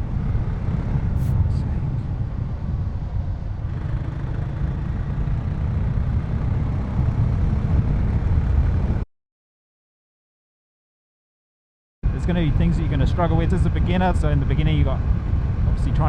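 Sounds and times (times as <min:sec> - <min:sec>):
motorcycle engine rumble: 0:00.0 - 0:09.0
wind noise: 0:00.0 - 0:09.0, 0:12.1 - 0:16.0.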